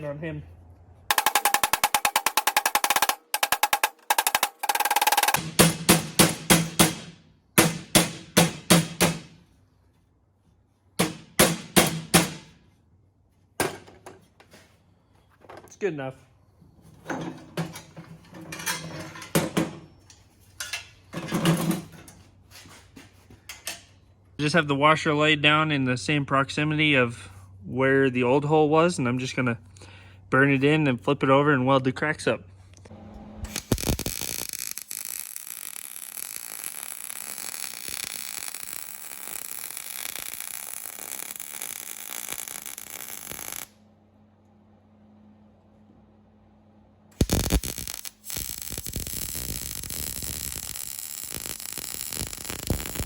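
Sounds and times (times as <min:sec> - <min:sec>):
steel parts clanking: 0:01.1 - 0:05.4, 0:17.1 - 0:22.2
welding arc crackling: 0:01.1 - 0:05.5, 0:33.5 - 0:43.8, 0:47.2 - 0:53.0.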